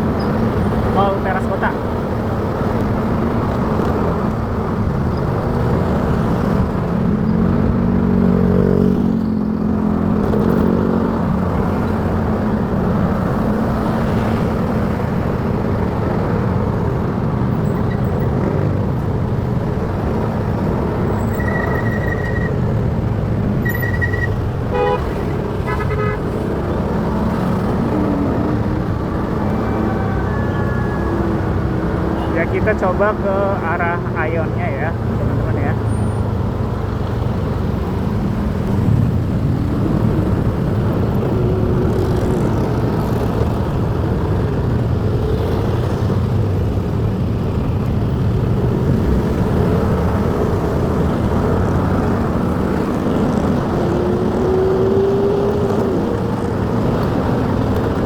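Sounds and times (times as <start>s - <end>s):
wind and traffic noise: 0.0s - 58.0s
vehicle horn toots: 23.9s - 26.2s.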